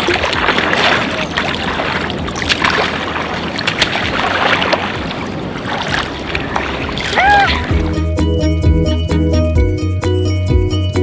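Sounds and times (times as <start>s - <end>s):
sea water splashing: 0.0s - 8.0s.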